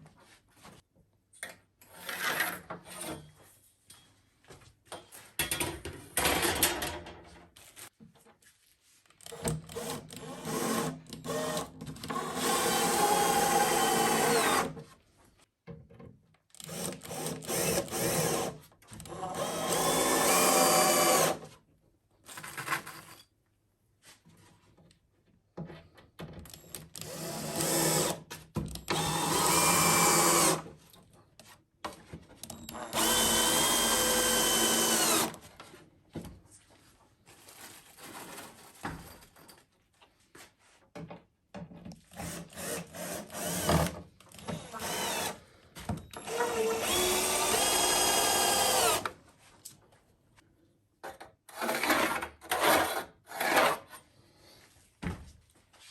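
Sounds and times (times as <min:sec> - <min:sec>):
electric drill drilling wood: 0:09.8 - 0:14.7, 0:16.7 - 0:18.6, 0:19.2 - 0:21.4, 0:27.0 - 0:28.2, 0:28.9 - 0:30.6, 0:32.7 - 0:35.4, 0:42.2 - 0:45.4, 0:46.2 - 0:49.1.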